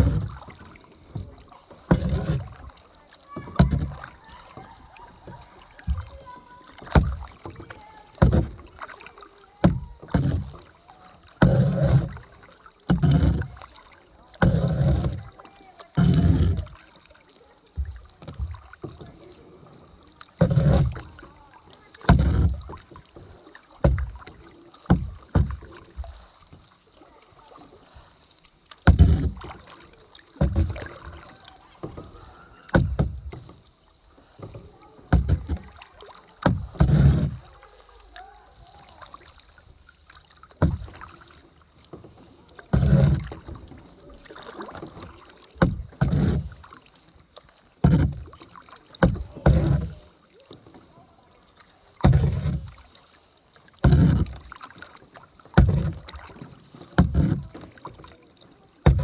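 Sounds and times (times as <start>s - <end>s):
paddle thump and splash: 0.0s - 59.0s.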